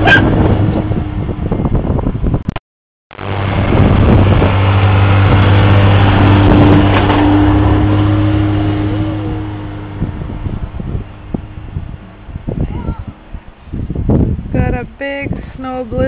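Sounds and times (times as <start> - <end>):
snowmobile engine running: 3.1 - 15.0.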